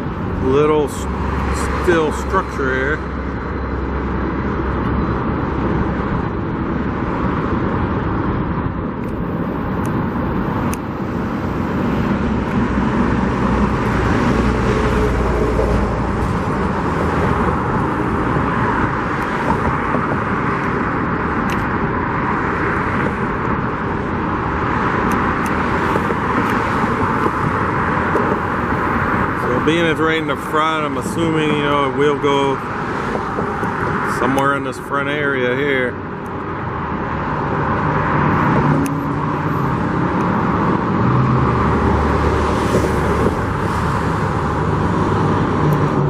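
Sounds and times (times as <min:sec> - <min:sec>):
cars passing on busy street: 0:00.0 - 0:46.0.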